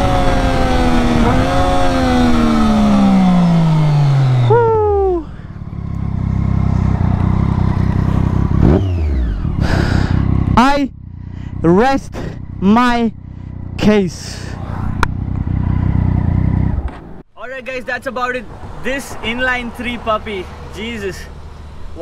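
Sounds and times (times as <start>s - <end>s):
motorcycle engine revs winding down: 0.0s - 16.9s
motorcycle engine idling: 0.2s - 17.2s
motorcycle throttle blip: 14.9s - 15.9s.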